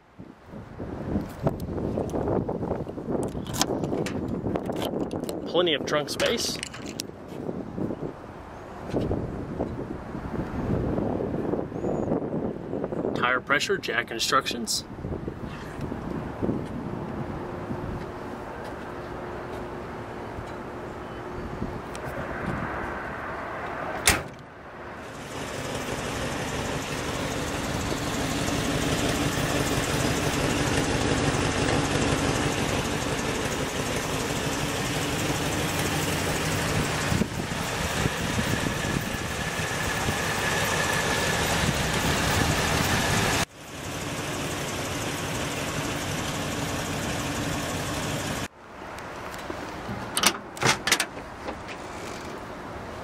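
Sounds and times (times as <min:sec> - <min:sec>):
car engine idling: 0:25.0 - 0:48.5.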